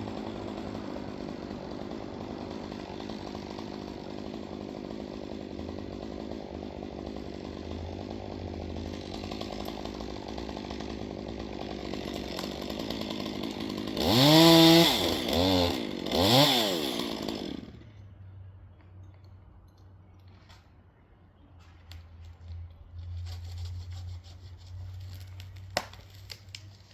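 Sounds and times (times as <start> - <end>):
chainsaw running and revving: 0.0 - 18.0.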